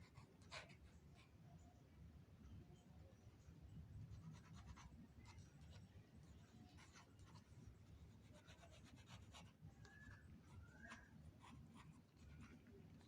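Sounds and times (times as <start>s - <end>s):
faint scratching and rustling: 4.1s - 13.0s.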